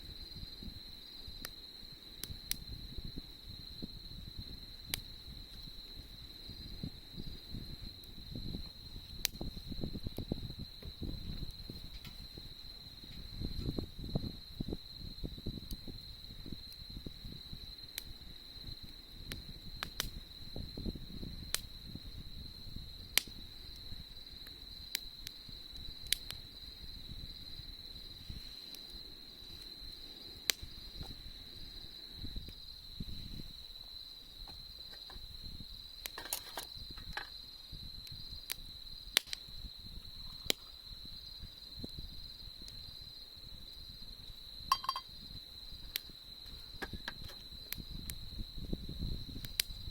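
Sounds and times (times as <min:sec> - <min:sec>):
campfire wood crackling: 0:00.0 - 0:49.9
crickets trilling: 0:00.0 - 0:49.9
low fluttering flame rumble: 0:00.0 - 0:49.9.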